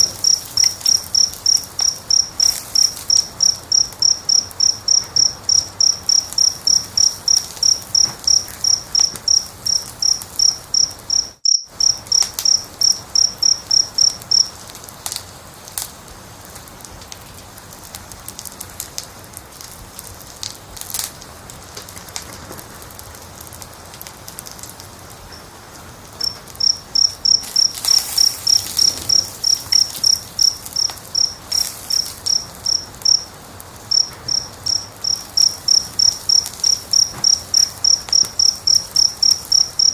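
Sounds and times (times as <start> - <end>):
cricket chirping: 0.0 - 14.7, 26.2 - 39.9
wood fire crackling: 0.0 - 39.9.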